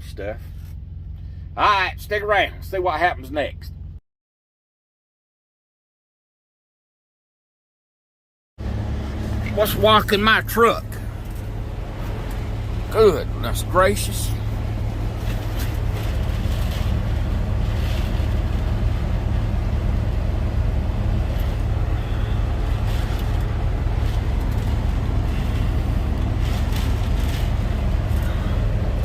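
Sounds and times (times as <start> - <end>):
steady low rumble: 0.0 - 4.0, 8.6 - 29.0
heavy rain on truck cab: 8.6 - 29.0
strong wind buffeting truck cab: 8.6 - 29.0.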